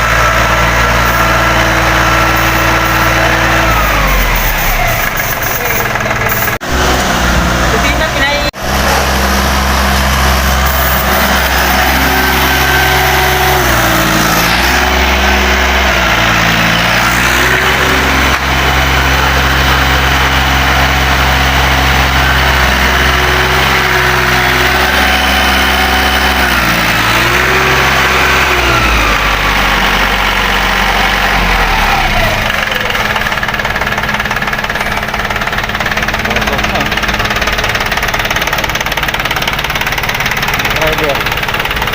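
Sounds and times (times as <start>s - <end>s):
three-cylinder engine running: 0.0s - 41.9s.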